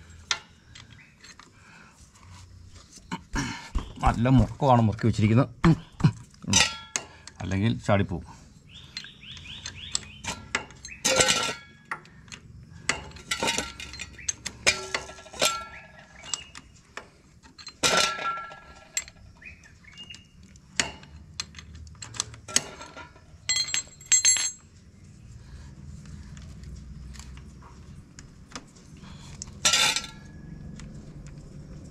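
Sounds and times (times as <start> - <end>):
spanner clinking on metal bolt: 6.4 - 7.5, 8.9 - 16.6, 17.4 - 24.7, 29.4 - 30.4.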